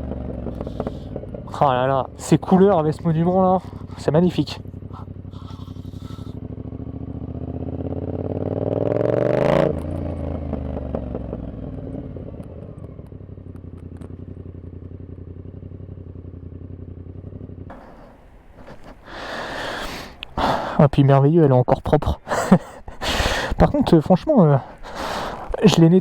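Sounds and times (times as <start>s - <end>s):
motorcycle engine revving: 0.0s - 18.6s.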